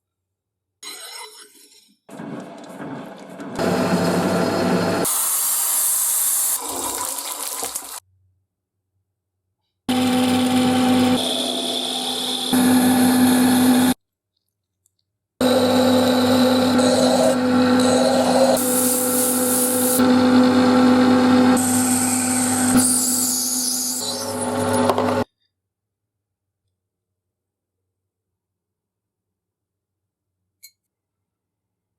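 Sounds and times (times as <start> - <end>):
electric power tool motor hum: 9.9 - 14.0, 15.4 - 25.2.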